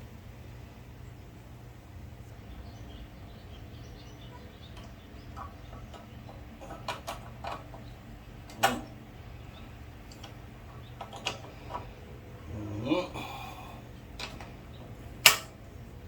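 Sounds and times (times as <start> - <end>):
steady low hum: 0.0 - 16.0
small metal parts clicking: 10.0 - 12.0.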